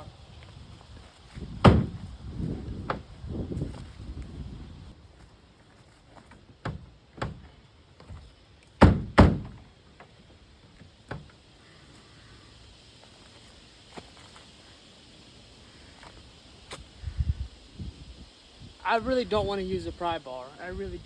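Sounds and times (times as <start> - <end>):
dull metal thunks on car hood: 1.6 - 2.0, 6.6 - 8.2, 8.8 - 9.6.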